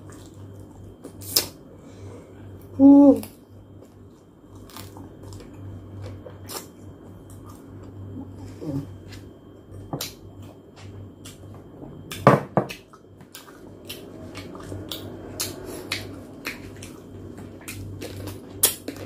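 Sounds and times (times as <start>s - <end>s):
steady low hum: 0.0s - 19.0s
person chewing: 3.8s - 11.5s, 12.1s - 19.0s.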